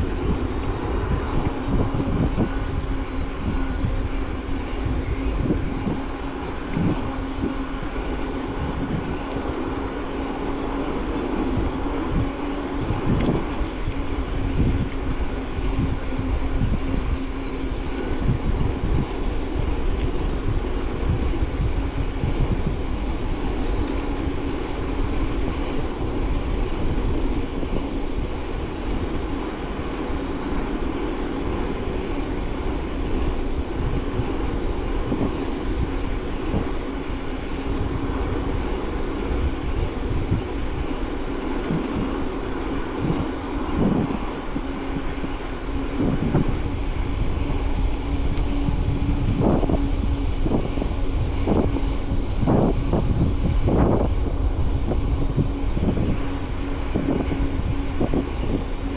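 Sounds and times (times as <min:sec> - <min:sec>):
bike tyres rolling rumble: 0:00.0 - 0:58.9
steady low hum: 0:00.0 - 0:58.9.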